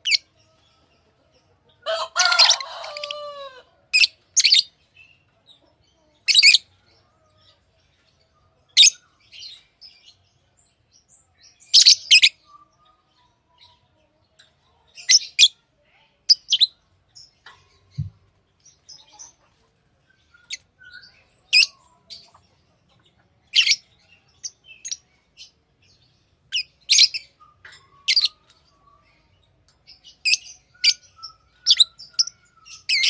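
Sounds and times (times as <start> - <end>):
lovebirds chirping: 0.0 - 33.0.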